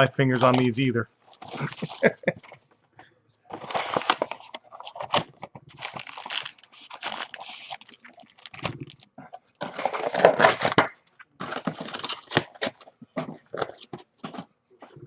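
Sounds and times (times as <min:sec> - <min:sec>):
wrapping torn and crinkled: 0:00.3 - 0:02.2, 0:03.5 - 0:13.9.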